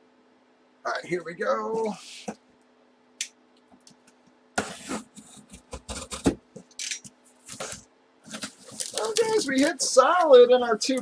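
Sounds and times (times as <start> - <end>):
packaging rubbing and scraping: 7.4 - 10.0.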